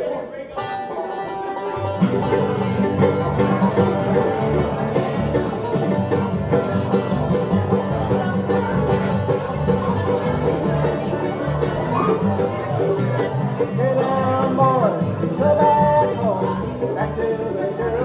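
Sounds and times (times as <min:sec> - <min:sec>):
banjo picking: 0:00.0 - 0:18.0
bluegrass band playing: 0:00.0 - 0:18.0.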